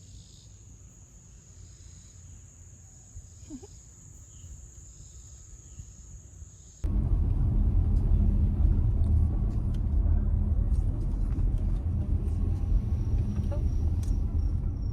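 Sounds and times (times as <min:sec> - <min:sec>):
moving car rumble: 0:06.8 - 0:14.9.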